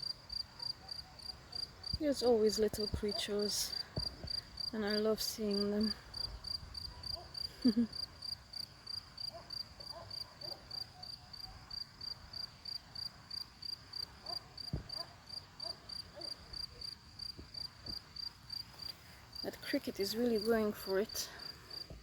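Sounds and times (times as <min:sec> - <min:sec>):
cricket chirping: 0:00.0 - 0:22.0.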